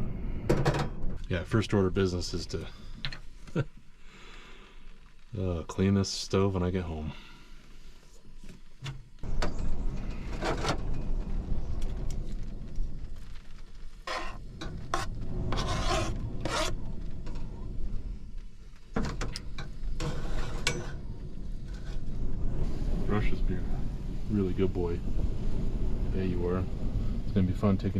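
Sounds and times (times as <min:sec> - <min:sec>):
steady low rumble: 0:00.0 - 0:27.9
pots and utensils scraping: 0:14.0 - 0:17.5, 0:19.6 - 0:21.0.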